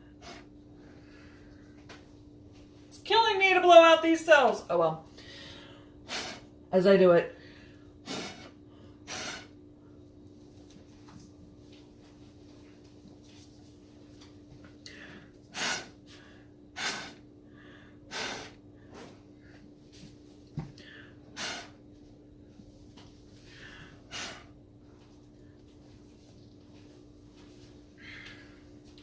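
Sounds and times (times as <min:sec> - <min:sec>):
puffs of breath through a straw: 0:08.1 - 0:09.5, 0:16.8 - 0:17.2, 0:18.1 - 0:19.1, 0:20.8 - 0:21.8, 0:23.5 - 0:24.5.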